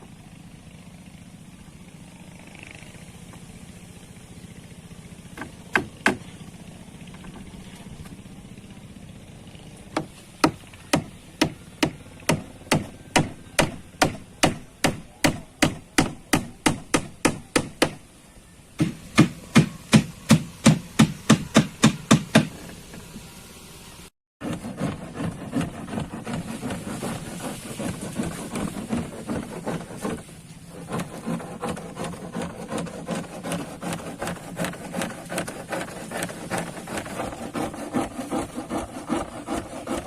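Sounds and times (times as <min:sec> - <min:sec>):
hammer blows: 0:18.8 - 0:23.0.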